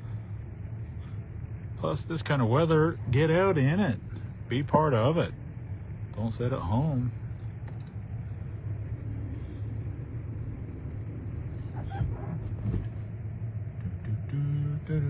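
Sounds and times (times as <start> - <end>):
car engine and tyres droning: 0.0 - 15.0.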